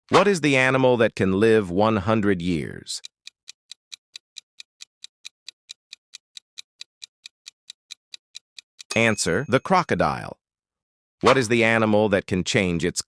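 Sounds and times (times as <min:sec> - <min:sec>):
clock ticking: 0:03.0 - 0:09.6.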